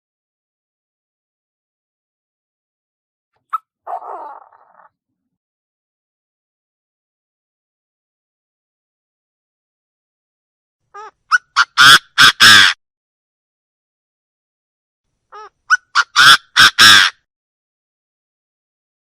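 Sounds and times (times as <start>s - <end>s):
bird calling harsh notes: 15.3s - 17.2s.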